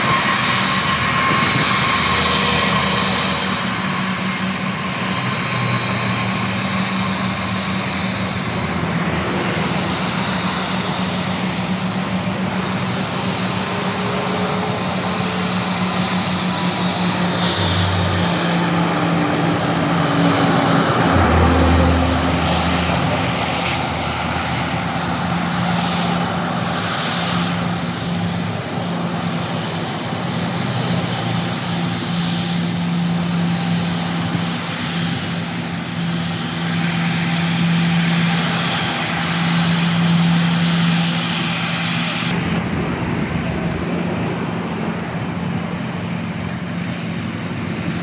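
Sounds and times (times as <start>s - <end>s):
airplane engines running: 0.0s - 48.0s
deep rumble: 5.8s - 28.8s, 42.1s - 46.7s.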